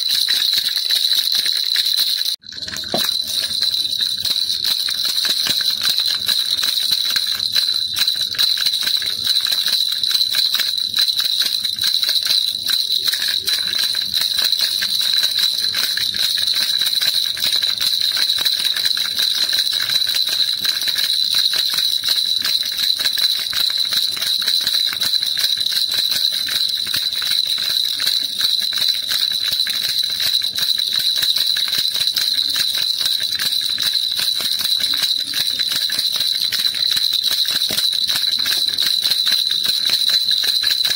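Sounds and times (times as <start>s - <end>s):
baby rattle shaken: 0.0s - 40.9s.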